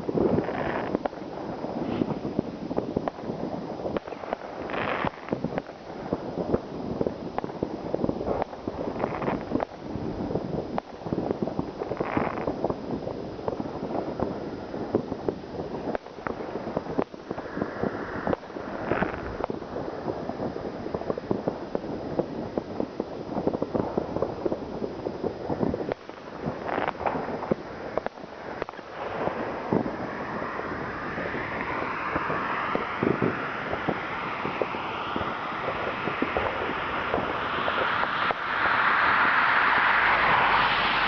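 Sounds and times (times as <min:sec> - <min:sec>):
fireworks crackling and banging: 0:00.0 - 0:41.0
rising whistling tone: 0:31.3 - 0:41.0.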